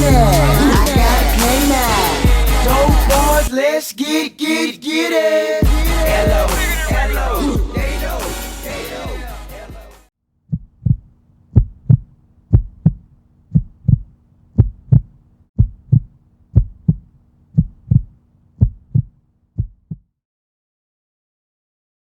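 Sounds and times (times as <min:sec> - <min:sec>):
heartbeat thumps: 0:00.0 - 0:03.4, 0:10.5 - 0:20.1
music: 0:00.0 - 0:03.5, 0:05.6 - 0:10.1.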